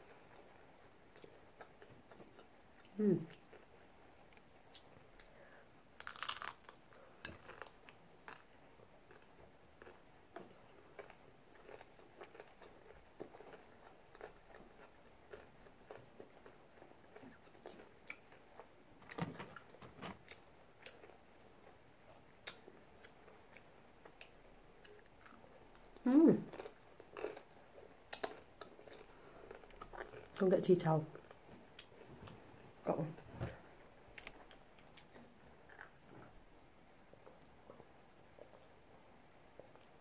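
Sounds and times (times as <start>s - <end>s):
taco shell crunching: 6.0s - 8.4s.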